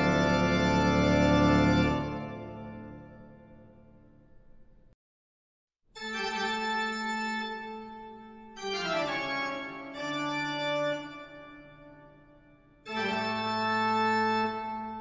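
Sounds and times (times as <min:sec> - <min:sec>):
organ playing held chords: 0:00.0 - 0:03.5, 0:06.0 - 0:12.2, 0:12.8 - 0:15.0.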